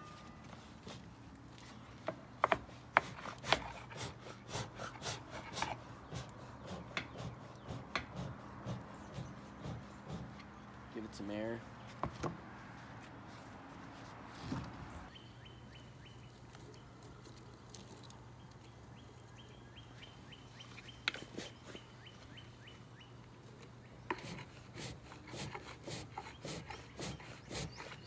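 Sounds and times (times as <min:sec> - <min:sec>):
bird chirping: 0:05.6 - 0:11.0, 0:14.9 - 0:24.3, 0:26.1 - 0:28.0.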